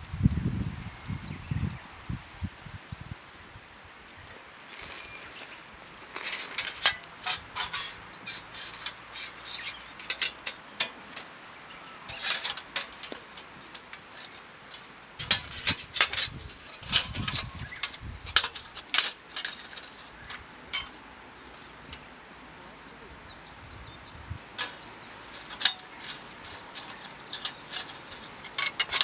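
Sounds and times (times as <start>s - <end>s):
metallic clinks of camping gear: 4.2s - 11.4s, 12.1s - 22.1s, 24.5s - 29.0s.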